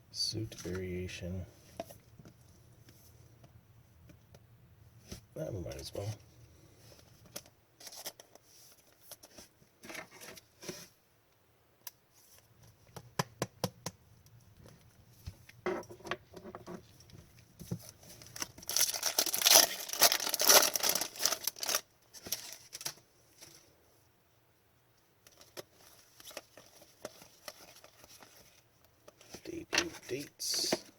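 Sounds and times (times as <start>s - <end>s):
wrapper tearing and crinkling: 18.2s - 23.0s.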